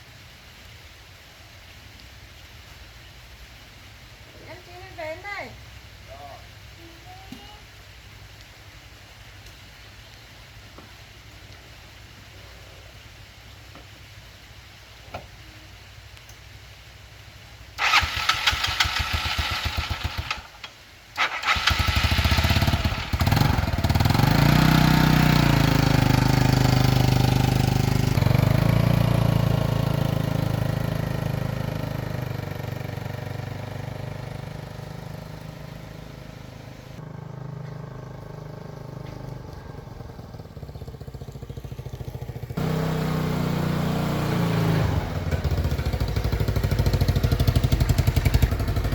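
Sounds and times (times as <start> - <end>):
small petrol engine starting and running: 17.8 - 48.9.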